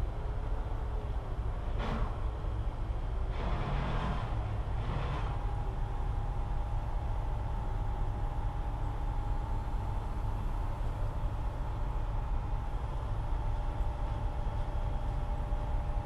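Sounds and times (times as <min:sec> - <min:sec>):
constant machine whine: 0:00.0 - 0:16.0
machine running with low rumble: 0:00.0 - 0:16.0.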